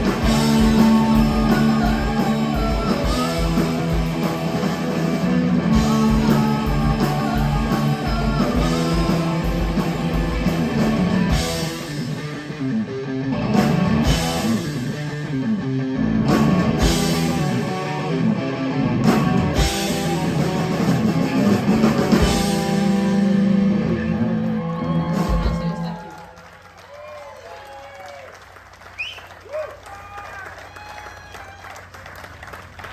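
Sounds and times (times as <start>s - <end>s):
heavy rock band playing: 0.0s - 26.2s.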